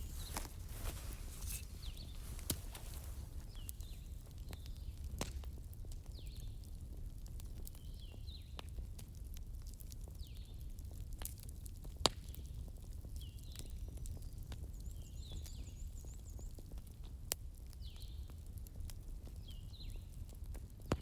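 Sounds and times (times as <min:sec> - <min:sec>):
sharp pops of fire: 0:00.0 - 0:04.1
wood fire crackling: 0:00.0 - 0:07.6.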